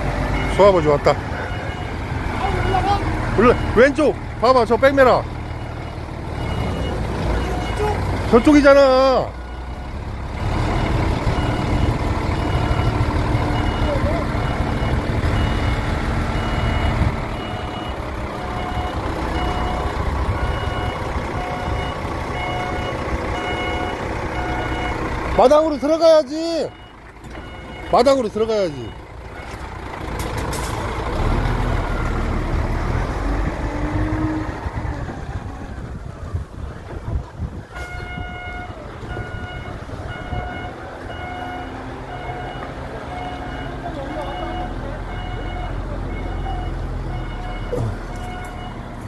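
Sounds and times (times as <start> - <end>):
truck engine running: 0.0 - 49.0
reversing alarm beeping: 0.3 - 4.7, 5.6 - 9.9, 10.8 - 25.0, 25.6 - 29.6, 37.8 - 48.9.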